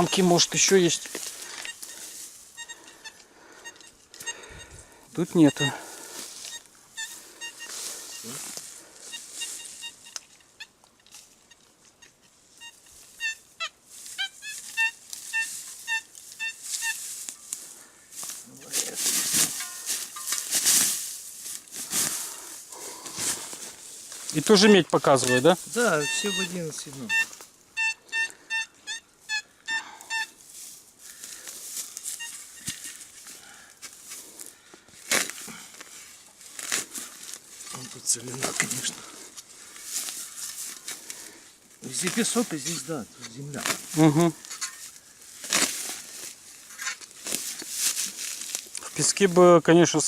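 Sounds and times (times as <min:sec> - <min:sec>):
metal detector beeps: 0:00.0 - 0:10.7, 0:11.4 - 0:17.1, 0:24.3 - 0:30.4, 0:32.0 - 0:33.0
faint rustling: 0:13.9 - 0:27.5.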